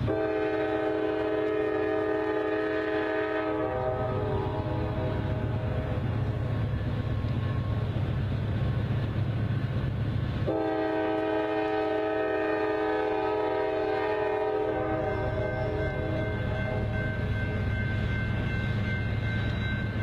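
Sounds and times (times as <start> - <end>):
multi-note locomotive horn: 0.0 - 6.5, 10.4 - 17.2
diesel locomotive engine rumble: 0.0 - 20.0.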